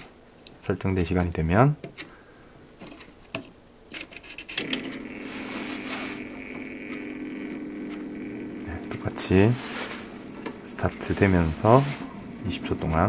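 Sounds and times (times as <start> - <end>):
small electric motor humming: 4.6 - 12.9.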